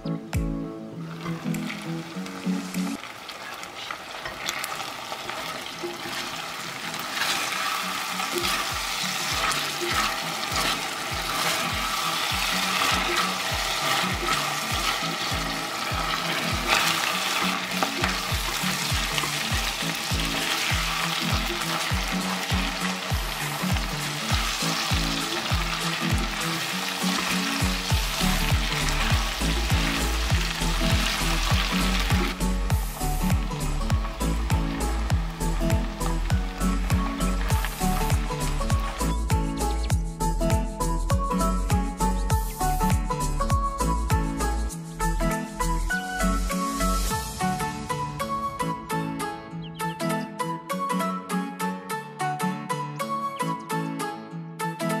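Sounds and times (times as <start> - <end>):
background music with beat: 0.0 - 3.0, 7.7 - 55.0
chicken sizzling in oil: 1.1 - 39.1
spatula stirring in pot: 5.4 - 19.8.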